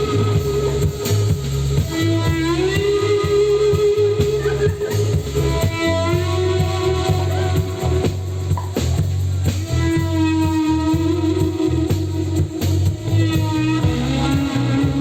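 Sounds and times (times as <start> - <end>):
pulsing bass line: 0.0 - 15.0
steady drums: 0.0 - 15.0
lead guitar bending notes: 9.9 - 15.0.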